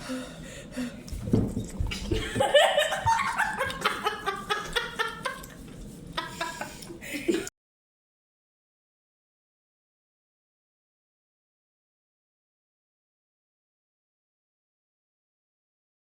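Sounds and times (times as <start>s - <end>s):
woman laughing and whimpering: 2.1s - 5.5s.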